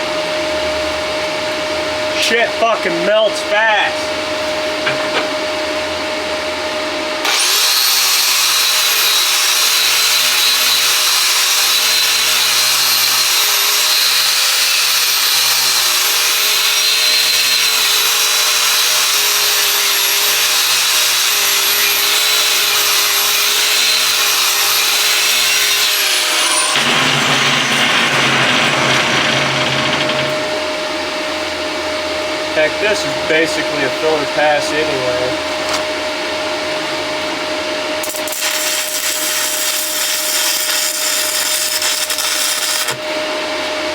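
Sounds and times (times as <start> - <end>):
welding arc crackling and hissing: 38.0 - 43.1.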